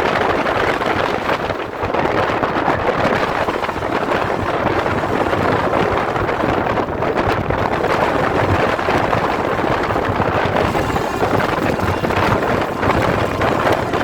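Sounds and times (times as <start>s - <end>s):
train wheels rumbling on rails: 0.0s - 14.0s
wind on microphone: 0.0s - 14.0s.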